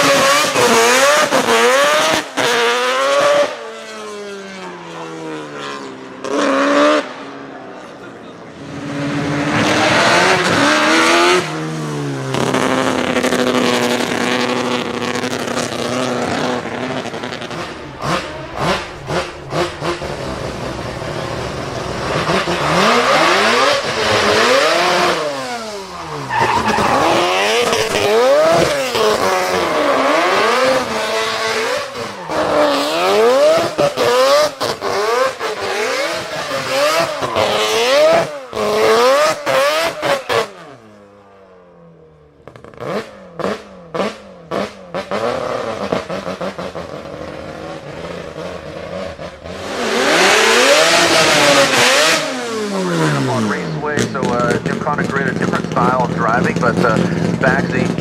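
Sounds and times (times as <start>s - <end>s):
rotary engine revving: 0.0s - 41.3s, 42.3s - 58.0s
tyre squeal: 18.2s - 33.6s, 35.6s - 40.6s
exhaust pops: 50.1s - 58.0s.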